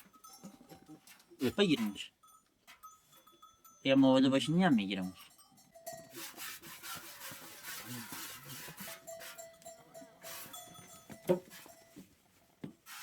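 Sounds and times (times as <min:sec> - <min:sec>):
thin ringing tone: 0:00.0 - 0:06.2, 0:08.9 - 0:12.1
sheep or goats shuffling: 0:05.9 - 0:13.0.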